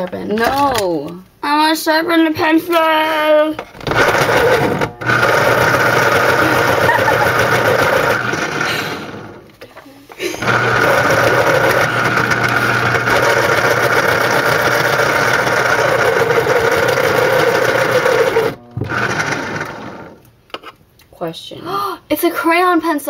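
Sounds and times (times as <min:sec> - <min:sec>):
electric pencil sharpener grinding: 0:03.8 - 0:09.5, 0:10.4 - 0:20.3.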